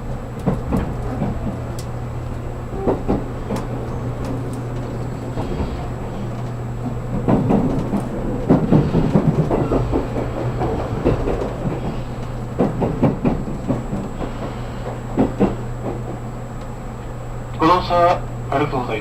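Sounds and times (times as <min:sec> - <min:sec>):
wheels clattering over track: 0:00.0 - 0:16.9
train running hum: 0:00.0 - 0:19.0.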